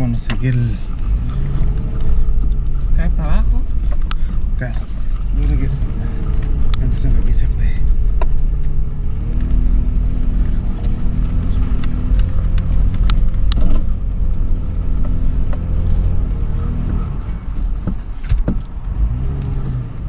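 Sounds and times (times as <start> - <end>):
suv engine running: 0.0 - 20.0.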